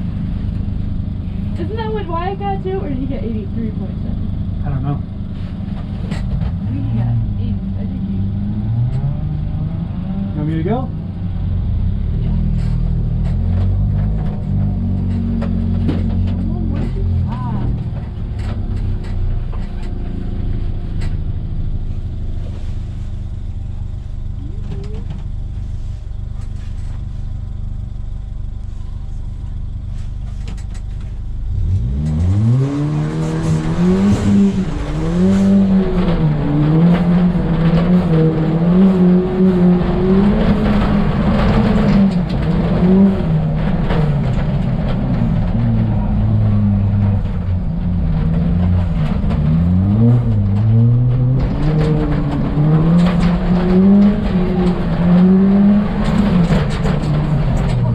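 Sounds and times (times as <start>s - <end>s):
rally car engine revving: 0.0s - 27.6s, 29.5s - 57.9s.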